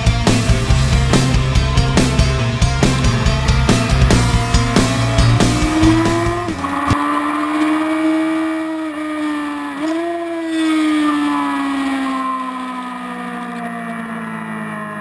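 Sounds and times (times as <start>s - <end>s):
rock music with heavy drums: 0.0s - 7.0s
motorcycle engine at high revs: 0.0s - 15.0s.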